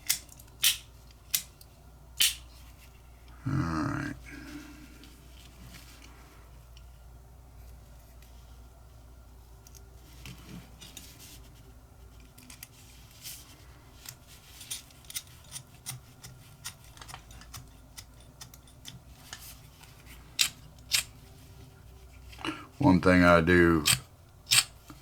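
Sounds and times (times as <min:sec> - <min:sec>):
small metal parts clicking: 0:23.8 - 0:24.7.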